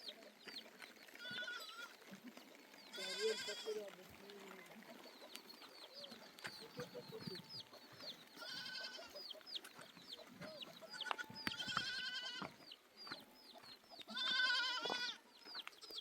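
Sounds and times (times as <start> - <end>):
goat bleating: 1.2 - 2.0, 2.9 - 3.9, 8.4 - 9.2, 10.7 - 12.6, 14.1 - 15.2.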